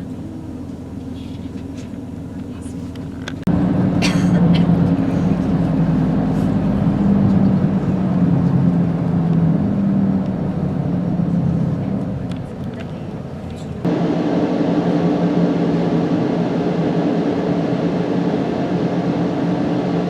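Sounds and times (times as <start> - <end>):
train rumbling from inside carriage: 0.0 - 14.1
low motor hum: 0.0 - 20.0.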